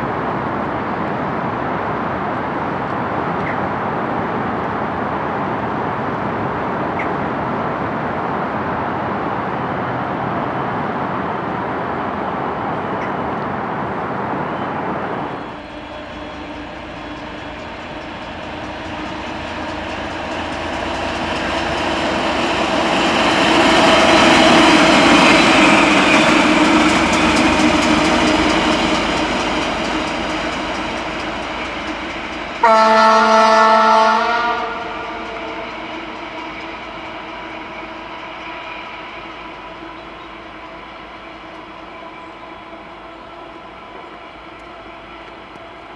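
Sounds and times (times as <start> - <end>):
train passing: 0.0 - 45.9
train horn: 32.6 - 36.3.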